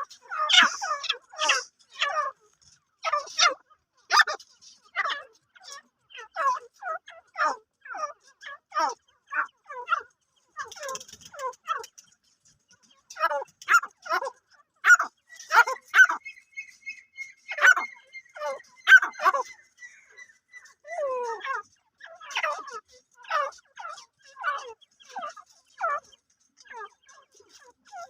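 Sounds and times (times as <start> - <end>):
francolin harsh calls: 0.3 - 2.1.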